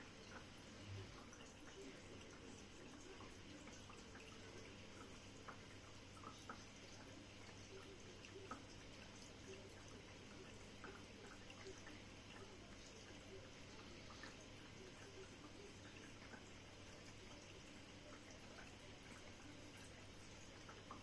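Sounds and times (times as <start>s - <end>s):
water dripping and trickling: 0.0s - 21.0s.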